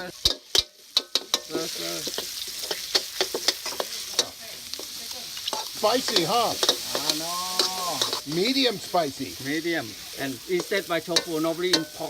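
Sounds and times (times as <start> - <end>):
food sizzling in a pan: 0.0 - 12.0
utensil scraping a pan: 0.2 - 8.8.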